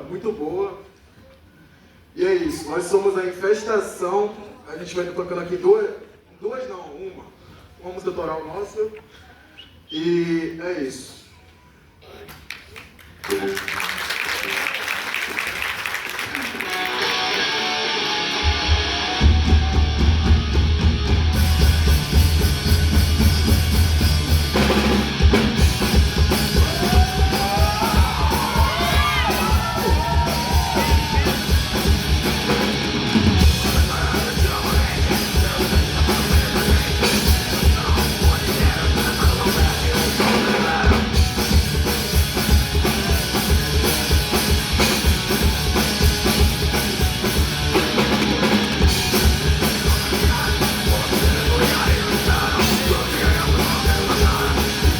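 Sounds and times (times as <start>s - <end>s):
fast hard drumming: 16.3s - 54.9s
distorted electric guitar: 16.6s - 54.9s
bass guitar: 16.7s - 54.9s.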